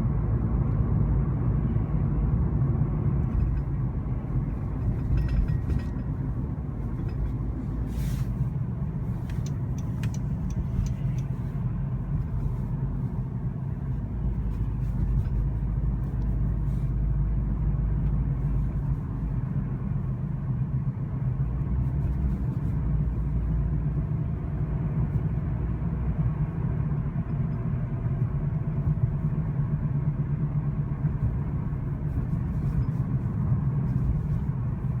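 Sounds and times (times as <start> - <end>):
car rumble and hum: 0.0 - 35.0.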